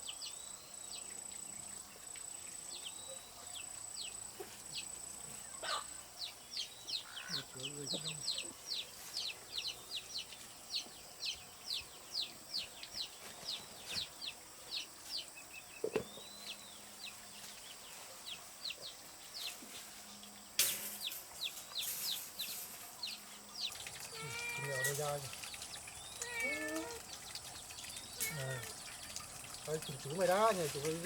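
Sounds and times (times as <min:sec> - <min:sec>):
short rustle: 0:19.2 - 0:23.2.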